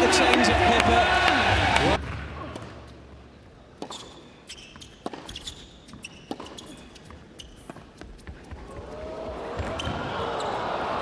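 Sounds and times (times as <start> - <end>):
crowd noise: 0.0 - 2.6, 8.6 - 11.0.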